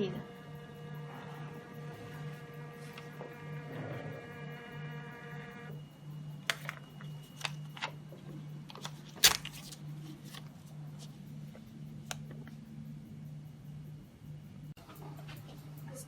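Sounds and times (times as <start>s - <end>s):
printer whine: 0.0s - 9.6s
steady low hum: 0.0s - 16.0s.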